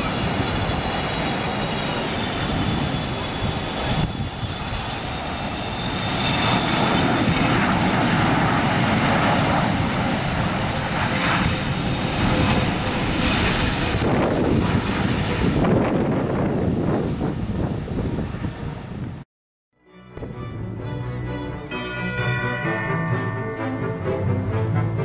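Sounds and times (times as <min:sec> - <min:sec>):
jet airliner engines passing: 0:00.0 - 0:19.2.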